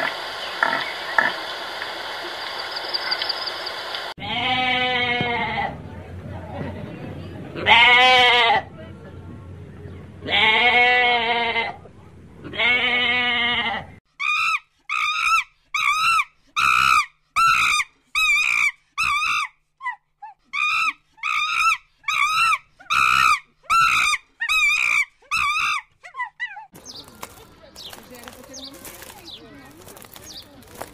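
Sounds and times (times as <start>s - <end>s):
sheep bleating: 4.2s - 5.7s, 10.2s - 11.8s, 12.4s - 14.0s.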